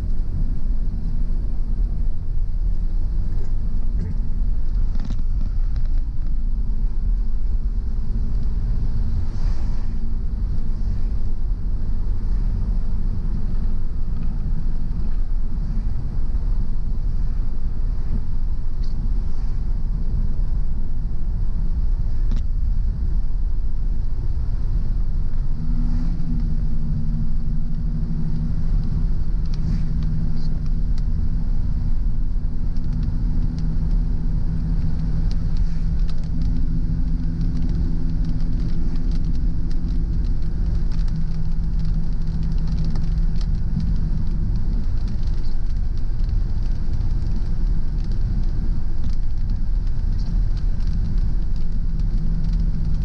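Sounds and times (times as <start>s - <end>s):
car engine and tyres on wet road: 0.0s - 53.0s
steady drone: 24.3s - 40.3s.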